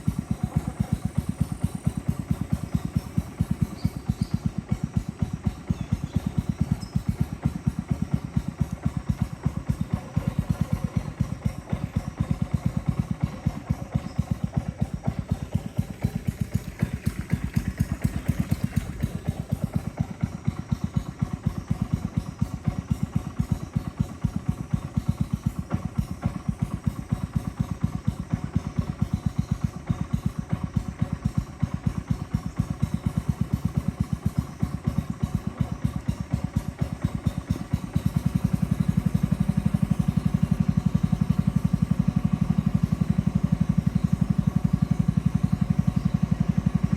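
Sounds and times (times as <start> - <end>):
boat motor thudding: 37.8 - 46.9.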